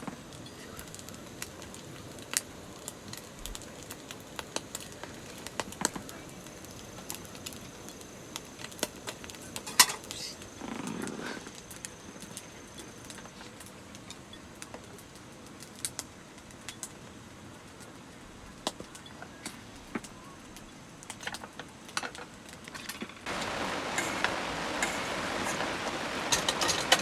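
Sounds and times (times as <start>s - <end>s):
steady hiss: 0.0s - 27.0s
utensils and dishes clicking: 24.0s - 27.0s.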